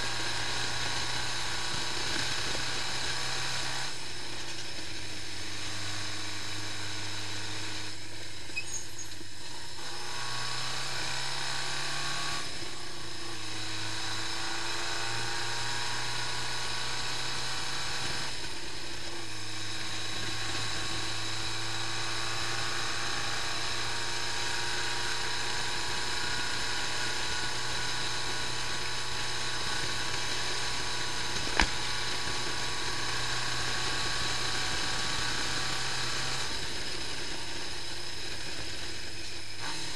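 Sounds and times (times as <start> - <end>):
motorcycle engine running: 0.0 - 39.9
sharp click: 31.4 - 31.9.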